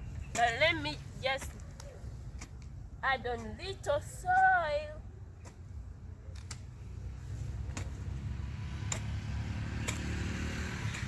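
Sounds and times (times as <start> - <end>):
vehicle engine approaching: 6.7 - 11.0.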